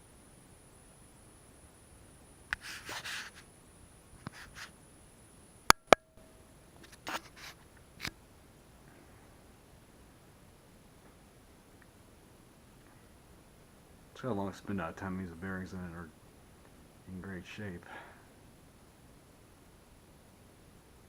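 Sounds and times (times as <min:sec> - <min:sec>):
short scrapes: 0:02.6 - 0:03.4, 0:04.3 - 0:04.7.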